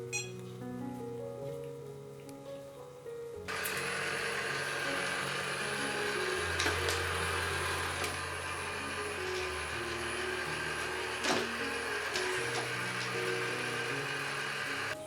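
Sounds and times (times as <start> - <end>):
background music: 0.0 - 15.0
vacuum cleaner motor running: 3.5 - 15.0.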